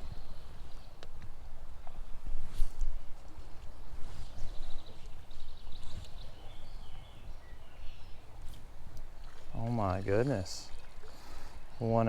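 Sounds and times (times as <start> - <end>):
small birds trilling and chirping: 3.6 - 12.0.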